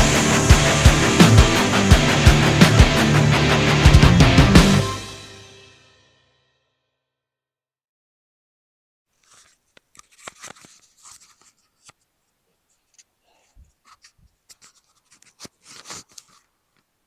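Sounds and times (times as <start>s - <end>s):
handling clicks and scrapes: 9.2s - 12.1s, 13.8s - 16.5s.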